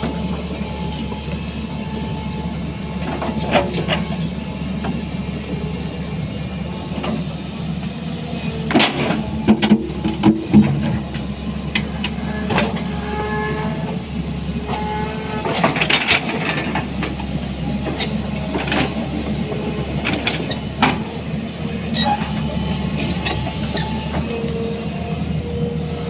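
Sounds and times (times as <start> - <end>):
excavator diesel engine running: 0.0 - 26.0
machine squeals: 21.9 - 24.2.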